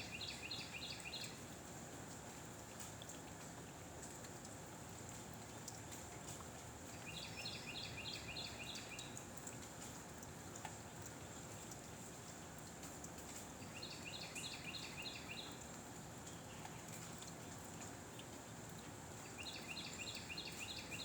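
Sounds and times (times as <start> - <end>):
bird singing: 13.6 - 15.6, 19.3 - 21.0.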